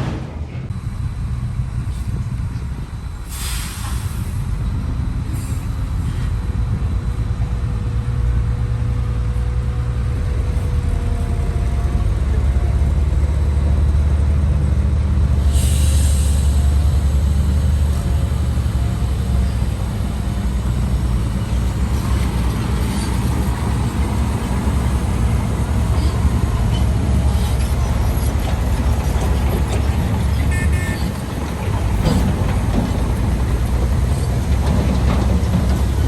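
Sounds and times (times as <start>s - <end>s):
heavy diesel engines rumbling: 0.0s - 36.0s.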